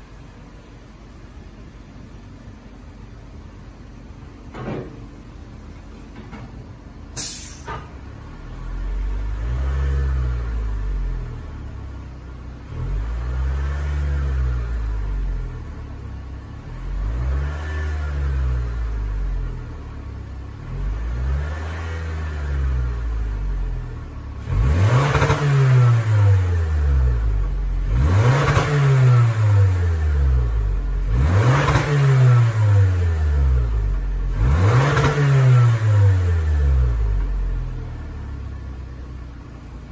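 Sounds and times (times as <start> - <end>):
short click: 7.2 - 7.9
car engine revving: 12.6 - 38.6.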